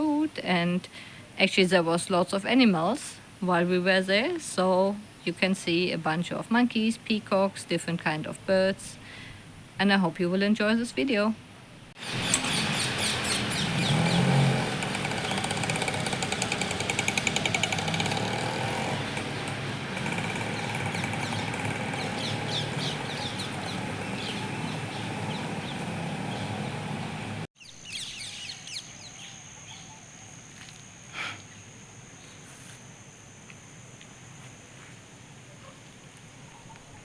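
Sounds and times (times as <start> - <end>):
birds chirping and calling: 12.0 - 18.2, 19.2 - 30.1.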